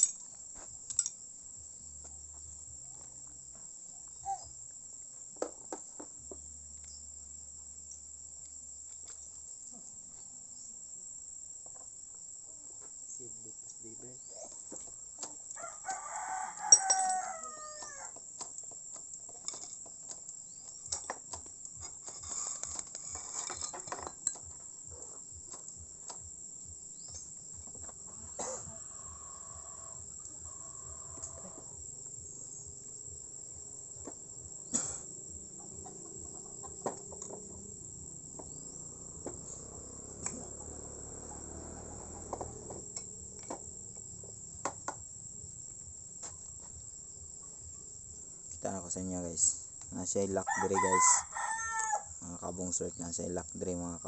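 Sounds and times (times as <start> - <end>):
crickets chirring: 0.0 - 54.0
rooster crowing: 15.5 - 18.2, 28.1 - 31.9, 50.4 - 52.2.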